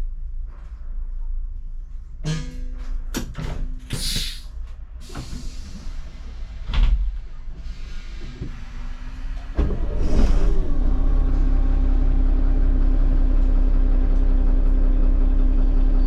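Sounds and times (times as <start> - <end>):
sharp hiss of air: 3.9 - 6.0
bus engine idling: 4.0 - 4.4, 10.8 - 16.0.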